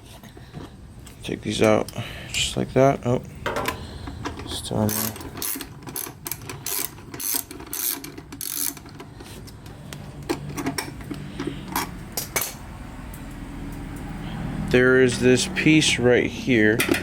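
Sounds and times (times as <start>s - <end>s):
ratchet wrench clicking: 4.7s - 9.1s.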